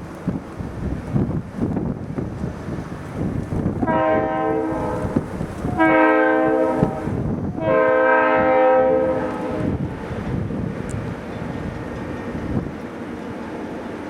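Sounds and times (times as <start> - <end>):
wind rumble on microphone: 0.0 - 12.9
locomotive air horn blasts: 3.8 - 9.8.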